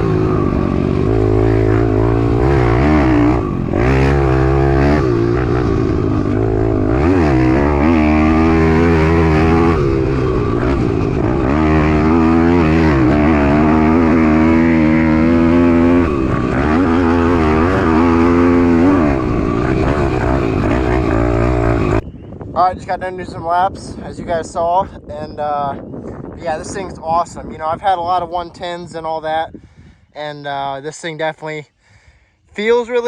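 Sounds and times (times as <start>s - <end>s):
pit bike engine revving: 0.0s - 22.0s.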